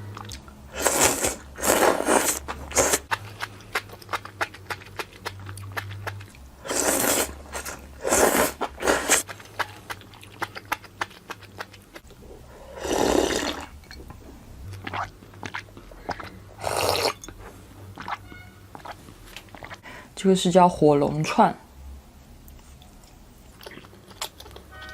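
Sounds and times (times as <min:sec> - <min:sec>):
chewing clicks: 0:02.8 - 0:06.4, 0:09.2 - 0:12.2, 0:22.5 - 0:24.9.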